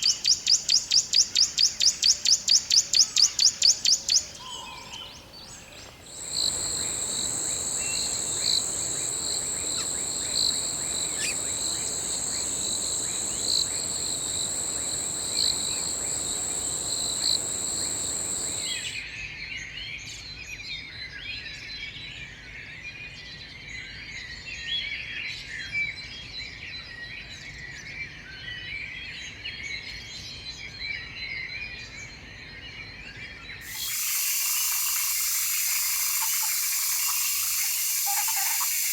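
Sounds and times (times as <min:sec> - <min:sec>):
birds chirping: 0:03.0 - 0:19.0, 0:33.7 - 0:38.9
hissing background: 0:05.1 - 0:19.0, 0:33.6 - 0:38.9
high-pitched insect drone: 0:06.2 - 0:18.9, 0:33.7 - 0:38.9.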